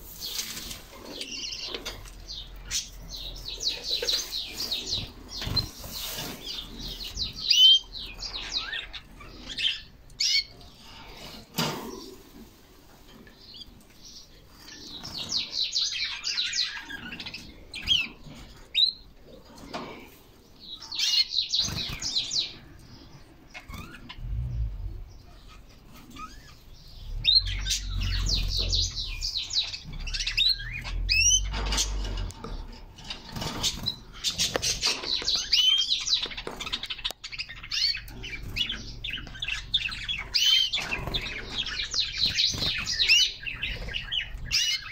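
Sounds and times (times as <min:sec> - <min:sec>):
canaries singing: 0:00.0 - 0:44.9
low rumble: 0:24.2 - 0:25.3.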